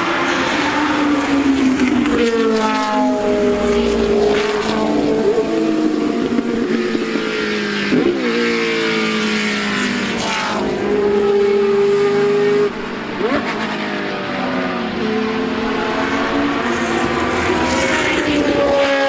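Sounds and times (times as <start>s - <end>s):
racing car engines at high revs: 0.0s - 19.0s.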